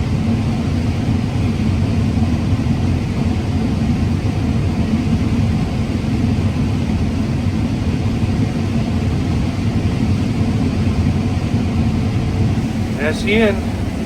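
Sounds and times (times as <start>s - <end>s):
combine harvester droning: 12.5s - 14.0s.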